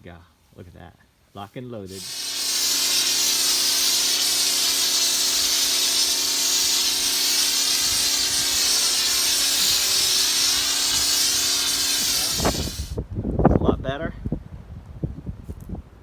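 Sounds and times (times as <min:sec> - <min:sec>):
pressure washer spray hissing: 0:01.9 - 0:13.0
machine hum: 0:02.0 - 0:13.0.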